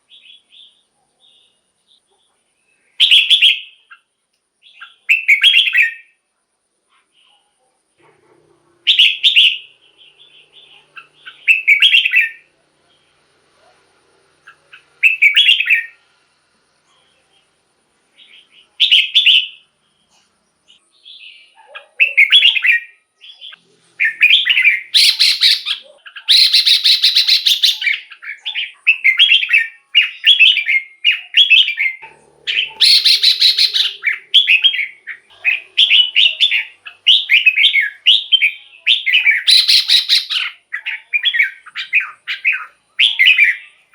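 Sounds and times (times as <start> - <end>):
bulbul singing warbled phrases: 8.9 - 13.2, 14.4 - 16.0, 20.7 - 43.9.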